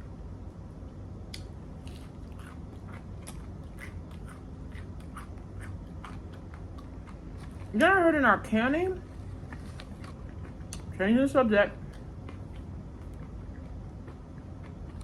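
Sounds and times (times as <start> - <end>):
low steady hum: 0.0 - 15.0
person chewing food: 1.3 - 7.8, 9.0 - 11.0, 11.8 - 15.0
mouth clicks and smacks: 9.6 - 10.9.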